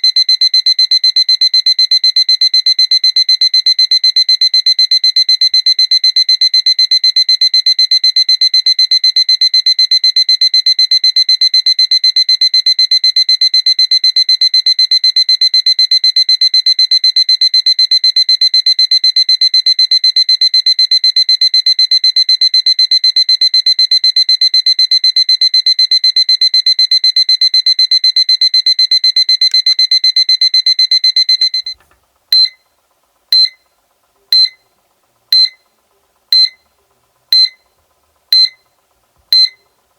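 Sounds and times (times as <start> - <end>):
alarm clock beeping: 33.4 - 33.6, 34.4 - 34.6, 35.4 - 35.6, 36.3 - 36.6, 37.3 - 37.6, 38.3 - 38.6, 39.4 - 39.6.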